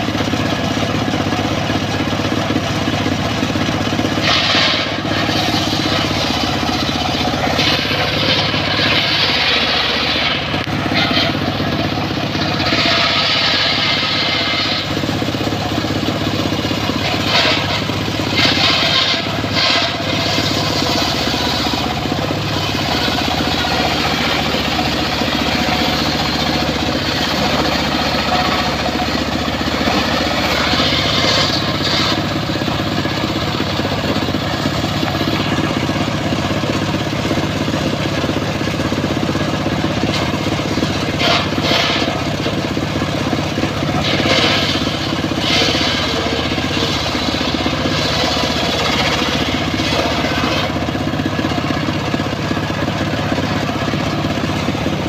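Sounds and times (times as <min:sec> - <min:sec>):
circular saw cutting wood: 0:00.0 - 0:55.0.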